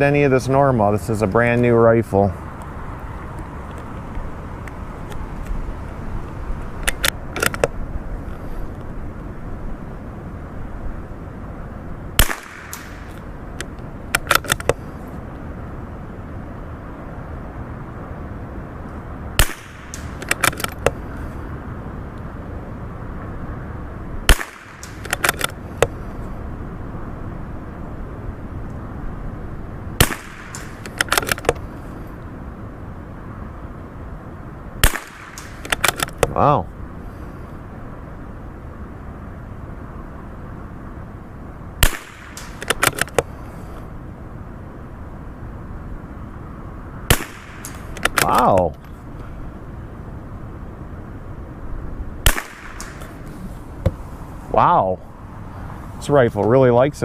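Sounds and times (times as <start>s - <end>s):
metallic clicks of rifle bolt: 6.8s - 7.7s, 12.7s - 14.8s, 19.9s - 20.9s, 24.8s - 25.9s, 30.5s - 31.6s, 35.3s - 36.3s, 42.4s - 43.2s, 47.6s - 48.9s
rifle shots: 12.2s - 13.2s, 19.4s - 20.8s, 24.3s - 25.5s, 30.0s - 31.5s, 34.8s - 36.1s, 41.8s - 43.2s, 47.1s - 48.5s, 52.2s - 53.2s.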